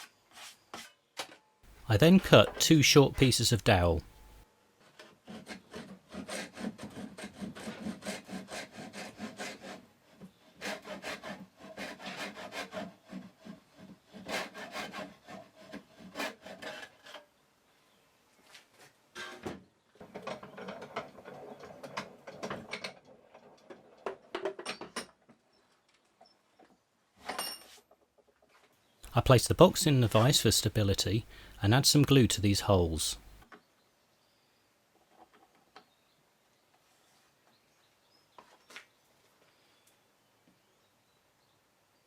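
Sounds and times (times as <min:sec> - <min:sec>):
hand saw cutting wood: 0:04.9 - 0:17.3.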